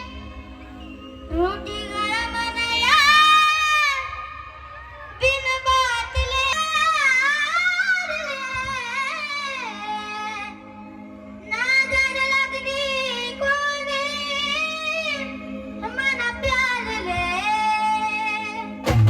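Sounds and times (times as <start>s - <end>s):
child singing: 5.2s - 10.6s, 11.5s - 18.8s.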